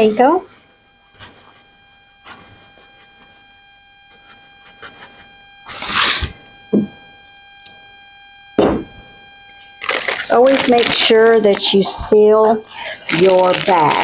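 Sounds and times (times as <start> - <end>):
dull knock: 8.6 - 8.9
plastic bag crinkling: 9.8 - 14.0.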